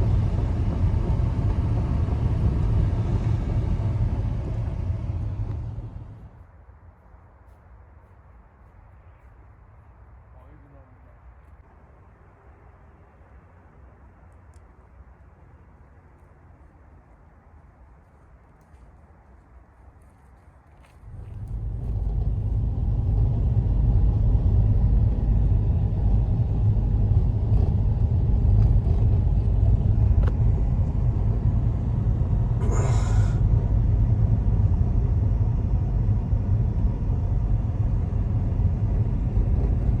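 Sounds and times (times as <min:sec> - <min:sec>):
blizzard wind buffeting microphone: 0:00.0 - 0:10.3, 0:11.6 - 0:40.0.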